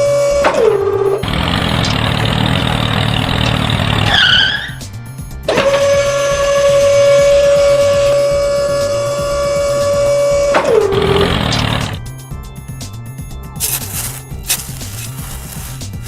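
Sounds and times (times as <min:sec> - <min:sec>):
background music: 0:04.4 - 0:16.0.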